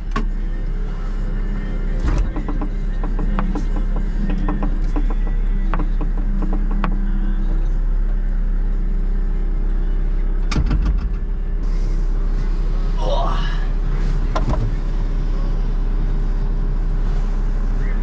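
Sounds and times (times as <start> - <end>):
diesel engine running: 0.0 - 18.0
sharp knocks and clicks: 2.0 - 7.4.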